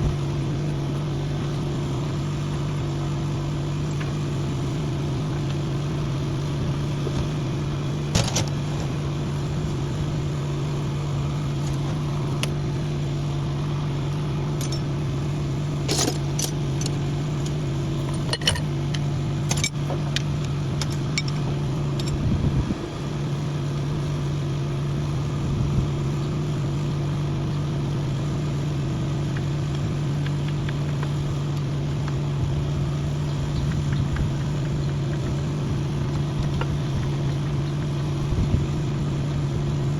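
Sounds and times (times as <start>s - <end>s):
engine idling: 0.0s - 39.9s
metallic clinks and knocks: 14.6s - 14.9s, 18.1s - 19.8s.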